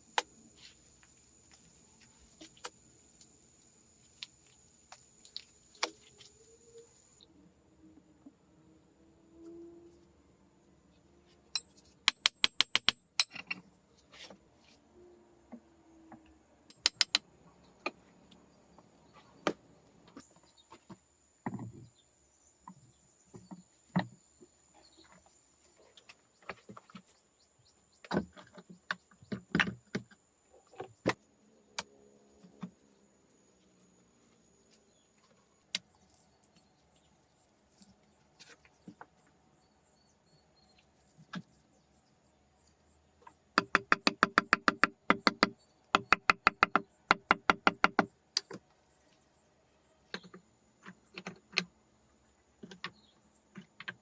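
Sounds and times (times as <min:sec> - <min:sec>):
sharp clicks and knocks: 0:11.6 - 0:13.6, 0:16.7 - 0:18.0, 0:43.6 - 0:48.6.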